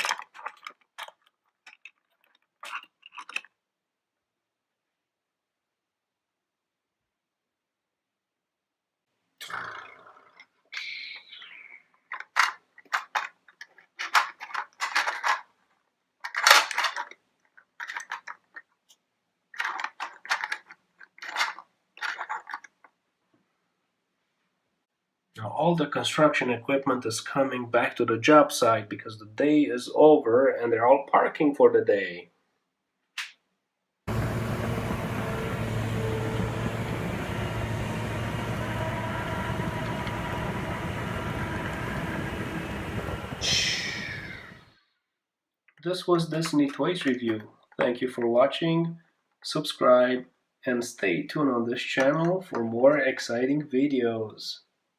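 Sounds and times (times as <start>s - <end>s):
plastic toy vehicles clicking: 0.0s - 3.6s, 12.0s - 15.6s, 16.2s - 23.0s, 45.9s - 48.4s
heavy engine rumble: 34.1s - 44.6s.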